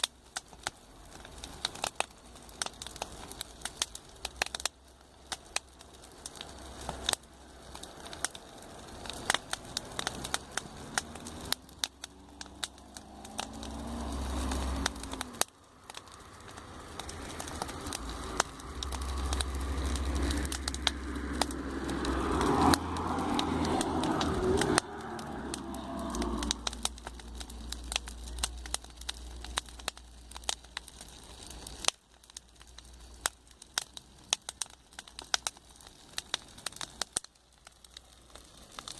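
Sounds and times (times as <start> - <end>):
campfire crackling and popping: 0.0 - 38.9
traffic passing: 4.4 - 30.6.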